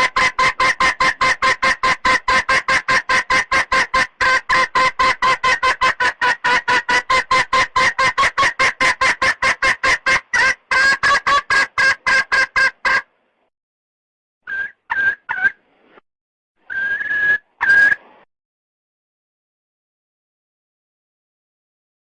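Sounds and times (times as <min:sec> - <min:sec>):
hen clucking: 0:00.0 - 0:13.1, 0:14.5 - 0:15.6, 0:16.7 - 0:18.0.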